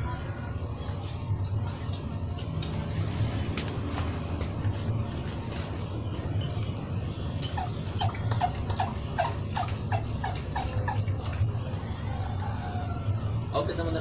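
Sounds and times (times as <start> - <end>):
bird calling: 7.4 - 12.8.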